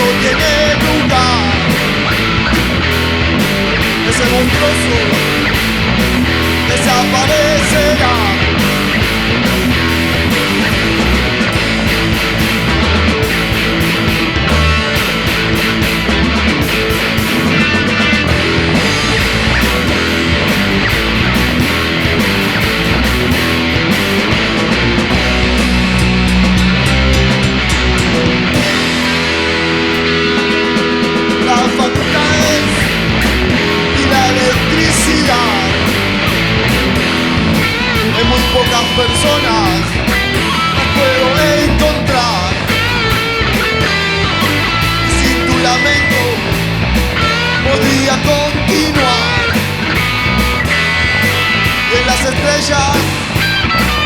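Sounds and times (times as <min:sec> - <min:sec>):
bass and drums: 0:00.0 - 0:54.0
distorted electric guitars: 0:00.0 - 0:54.0
instrumental rock music: 0:00.0 - 0:54.0.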